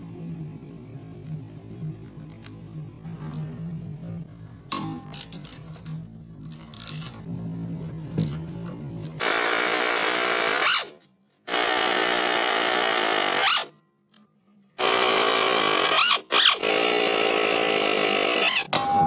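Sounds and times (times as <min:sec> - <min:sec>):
power tool whining: 0:09.2 - 0:13.7, 0:14.8 - 0:18.7.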